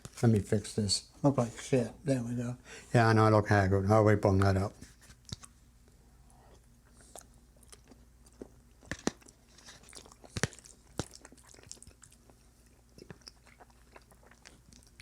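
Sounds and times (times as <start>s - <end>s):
man chewing food: 5.2s - 15.0s.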